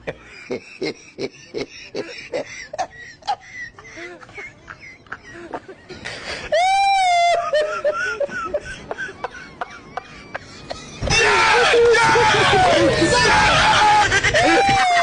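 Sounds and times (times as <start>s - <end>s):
loud high cry: 10.8s - 15.0s.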